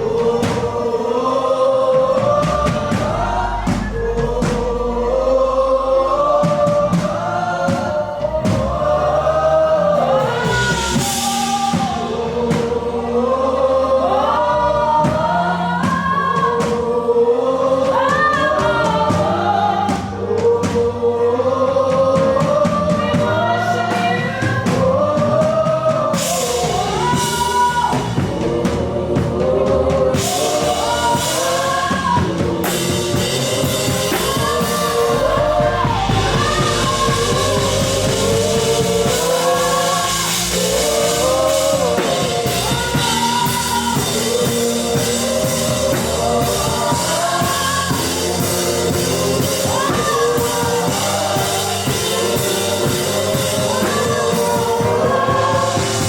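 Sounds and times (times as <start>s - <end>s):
band playing: 0.0s - 56.0s
gospel choir singing: 0.0s - 56.0s
sustained low instrumental notes: 24.4s - 56.0s.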